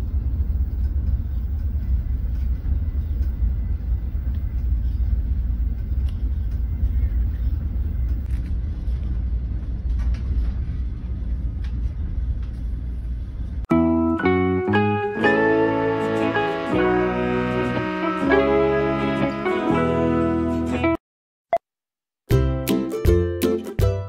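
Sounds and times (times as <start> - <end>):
train carriage rumble: 0.0 - 13.7.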